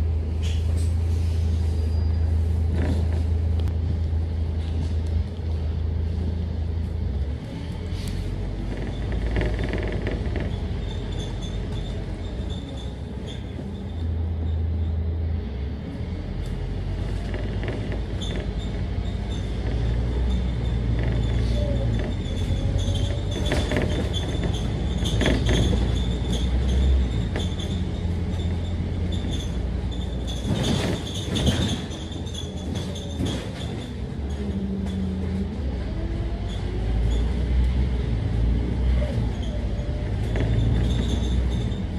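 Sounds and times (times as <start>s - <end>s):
bus diesel engine: 0.0s - 41.9s
rattles and clatters: 2.5s - 3.7s, 7.9s - 14.5s, 16.8s - 41.9s.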